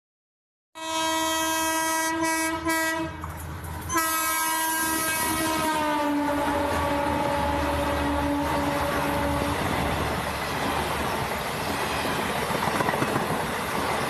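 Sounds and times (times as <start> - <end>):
locomotive horn blasts: 0.8 - 3.2, 3.9 - 9.9
train rumble: 1.3 - 14.0.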